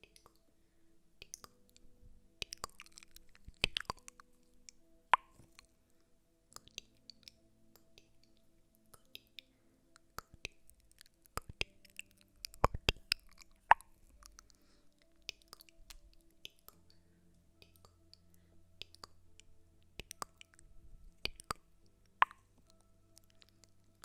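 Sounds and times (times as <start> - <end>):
soft clicks and taps: 1.2 - 5.8, 6.5 - 24.0.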